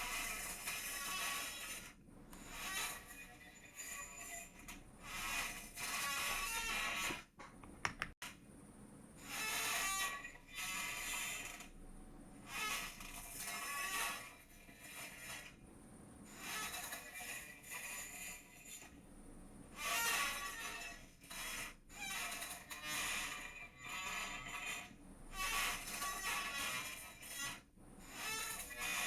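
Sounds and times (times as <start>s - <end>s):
chair creaking and squeaking: 0.0s - 8.2s, 9.2s - 11.7s, 12.5s - 15.5s, 16.3s - 18.4s, 19.8s - 29.0s
sharp clicks: 7.6s - 8.2s.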